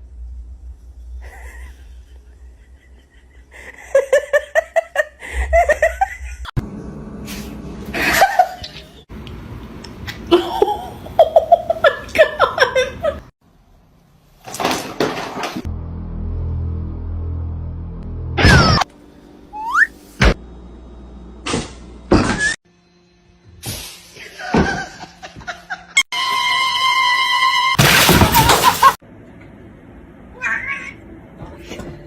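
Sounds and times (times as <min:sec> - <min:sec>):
person laughing hard: 0:01.2 - 0:06.5, 0:07.9 - 0:08.8, 0:10.3 - 0:13.3, 0:24.3 - 0:26.0.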